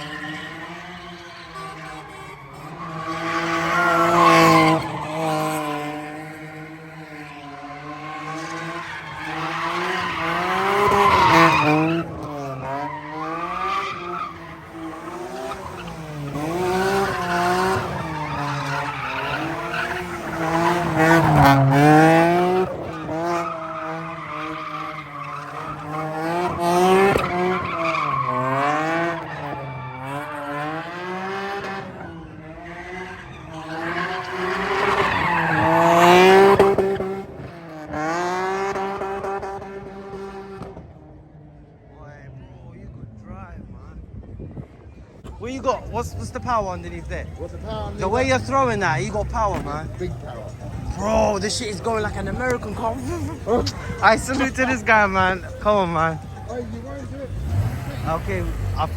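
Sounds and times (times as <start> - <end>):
car engine revving: 0.0 - 41.7, 45.3 - 58.9
tyres squealing: 7.1 - 30.7.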